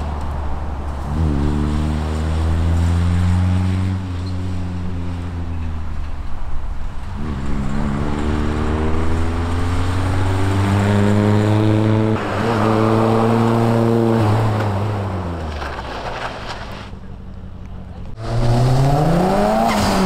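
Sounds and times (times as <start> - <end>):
car engine accelerating: 0.8 - 5.9, 7.0 - 15.6, 18.0 - 20.0.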